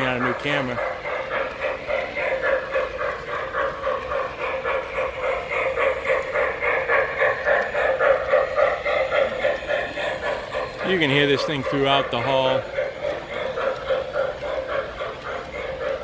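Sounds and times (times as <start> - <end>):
model train chugging sound: 0.0 - 16.0.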